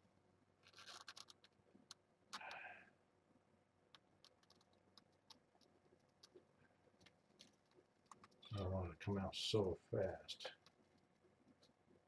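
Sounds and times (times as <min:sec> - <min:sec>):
faint plastic clicks: 0:00.6 - 0:02.9, 0:03.8 - 0:08.7, 0:10.3 - 0:12.0.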